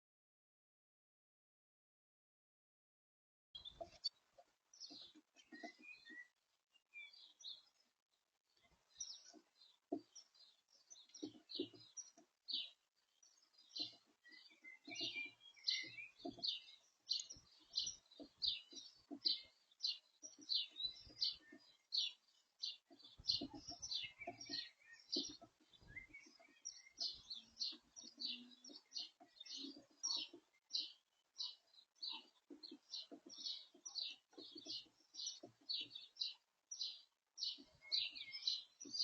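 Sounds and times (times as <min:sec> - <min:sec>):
songbird chirping: 0:03.6 - 0:39.0.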